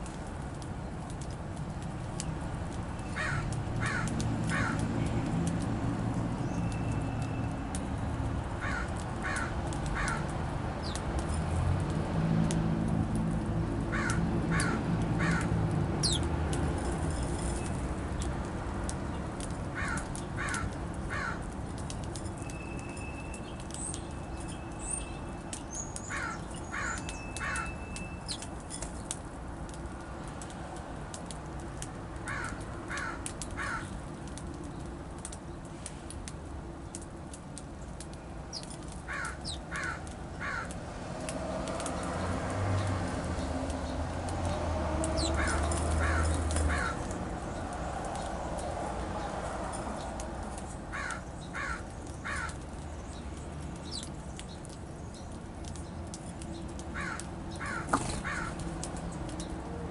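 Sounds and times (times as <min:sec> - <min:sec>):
small birds chirping: 0:02.0 - 0:11.3, 0:14.0 - 0:16.4, 0:17.1 - 0:29.3, 0:36.8 - 0:40.8, 0:41.8 - 0:59.7
bird calling harsh notes: 0:26.0 - 0:28.5.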